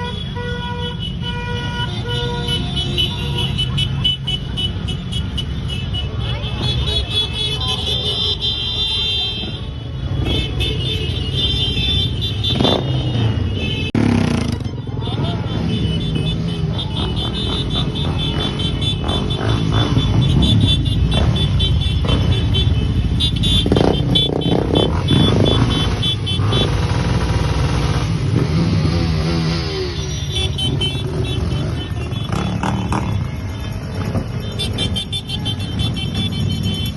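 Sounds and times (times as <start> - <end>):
motorcycle engines running: 9.4 - 36.9.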